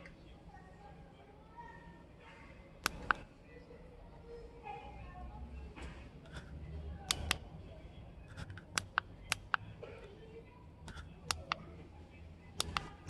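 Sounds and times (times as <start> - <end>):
sharp short clicks and taps: 7.1 - 7.4, 8.3 - 9.6, 10.8 - 11.6, 12.6 - 13.0.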